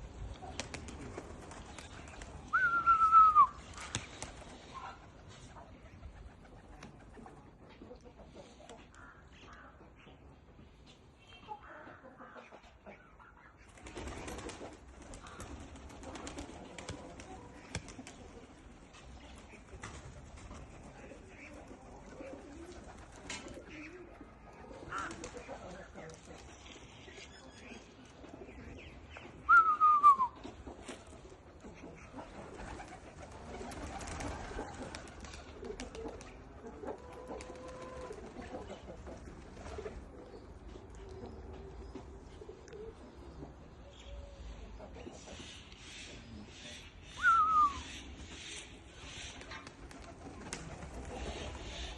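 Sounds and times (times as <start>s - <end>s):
pigeons cooing: 13.8s - 27.4s, 28.1s - 46.5s, 47.2s - 51.9s.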